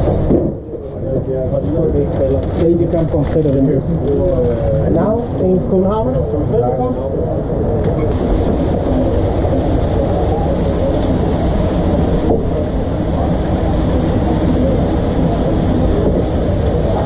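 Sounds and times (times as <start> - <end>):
constant high hiss: 8.1 - 17.0
machinery low rumble: 8.1 - 17.0.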